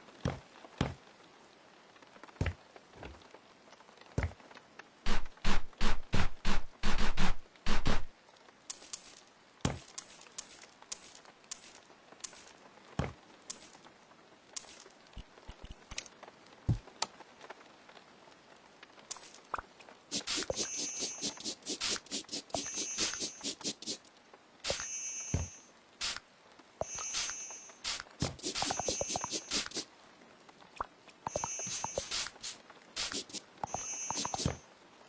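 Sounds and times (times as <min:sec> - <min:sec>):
high-pitched clinks: 0:19.1 - 0:19.6, 0:26.8 - 0:29.8.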